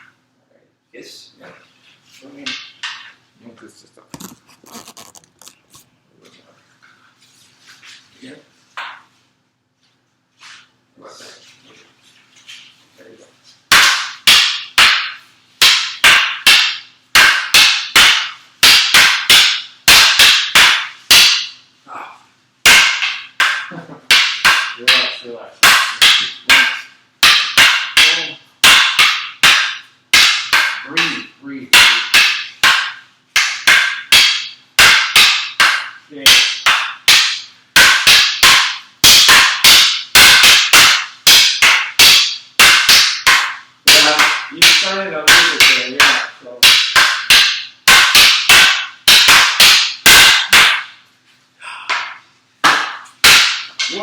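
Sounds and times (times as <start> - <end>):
wooden sticks clacking together: 22.7 - 51.0, 51.8 - 54.0
sticks clacking together: 51.8 - 54.0.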